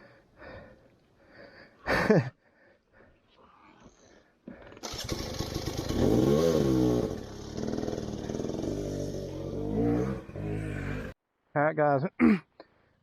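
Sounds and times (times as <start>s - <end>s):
motorcycle engine revving: 4.8s - 11.2s.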